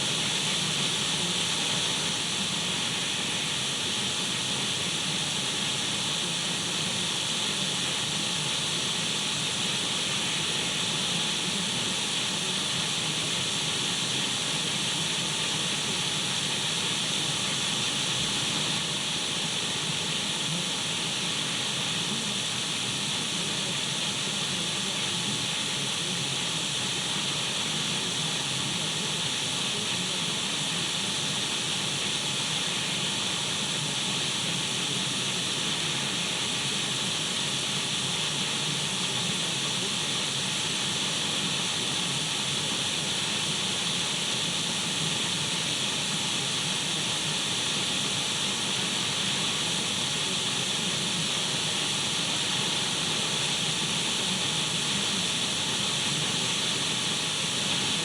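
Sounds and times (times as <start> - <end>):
radio static hiss: 0.0 - 14.8, 15.5 - 58.0.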